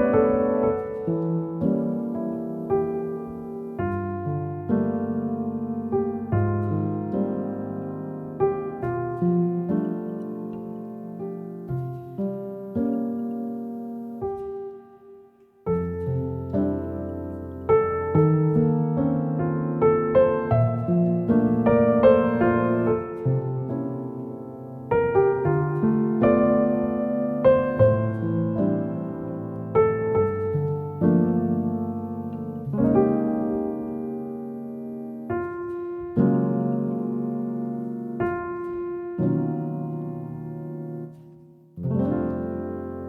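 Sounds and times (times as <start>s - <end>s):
slow piano piece: 0.0s - 43.0s.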